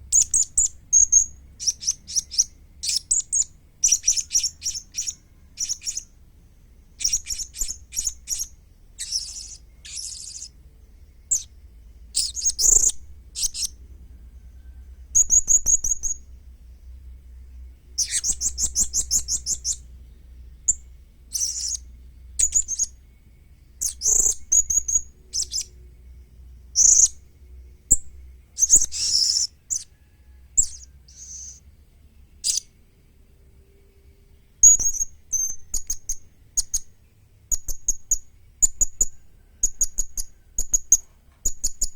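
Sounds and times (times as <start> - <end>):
parrot chirps and trills: 0.1 - 6.1, 7.0 - 10.6, 11.3 - 13.8, 18.0 - 19.8, 20.7 - 23.0, 23.8 - 25.8, 26.8 - 27.2, 27.9 - 31.6, 32.4 - 32.8, 34.6 - 36.9, 37.5 - 41.9.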